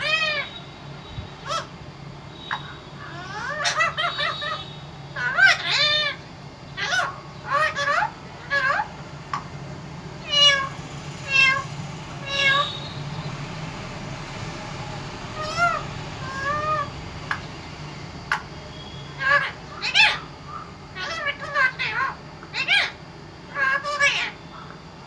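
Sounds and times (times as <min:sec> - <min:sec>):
parrot meow-like calls: 0:00.0 - 0:00.6, 0:01.4 - 0:01.8, 0:02.4 - 0:09.5, 0:10.2 - 0:24.8.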